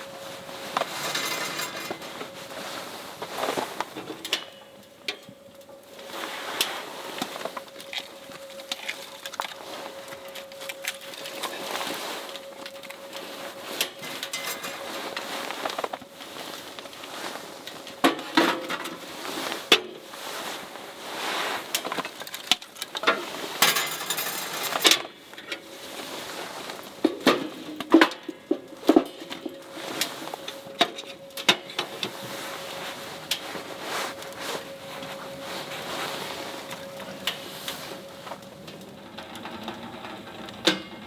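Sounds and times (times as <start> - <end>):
faint steady hum: 0.0 - 41.0
objects clinking and knocking: 0.3 - 4.5, 22.8 - 25.6.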